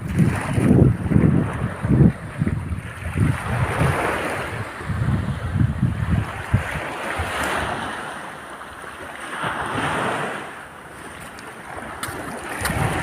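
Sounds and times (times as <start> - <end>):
wind buffeting microphone: 0.0 - 8.3, 11.0 - 13.0
sea waves washing over rocks: 0.0 - 13.0.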